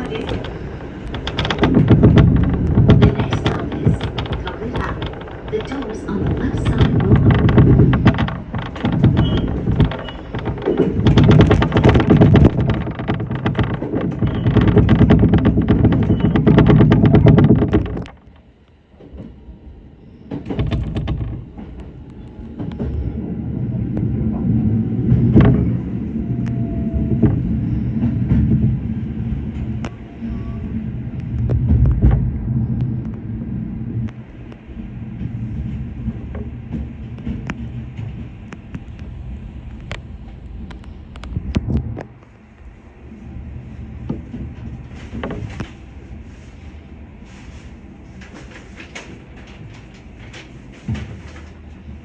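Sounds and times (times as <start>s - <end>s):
faint train whine: 0.0s - 12.1s, 18.2s - 52.0s
electric train running: 0.0s - 18.1s
wheels clicking over rail joints: 0.0s - 52.0s.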